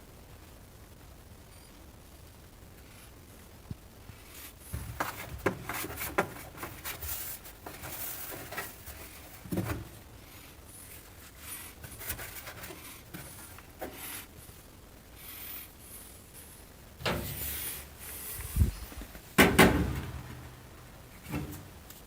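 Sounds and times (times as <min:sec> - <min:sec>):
rustling of objects handled: 0:04.3 - 0:14.6.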